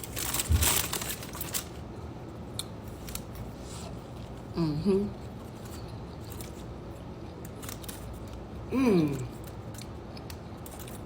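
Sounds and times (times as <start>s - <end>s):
person humming mm: 4.5s - 5.2s, 8.7s - 9.3s.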